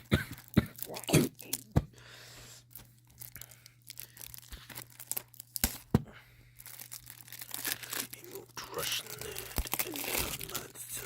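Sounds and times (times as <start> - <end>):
plastic shrink-wrap tearing: 2.7 - 6.0, 6.6 - 11.0.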